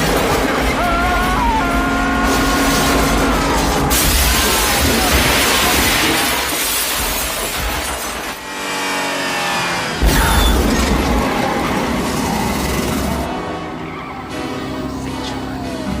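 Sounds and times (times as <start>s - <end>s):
car engines: 0.0s - 16.0s
glass shattering: 2.2s - 8.4s.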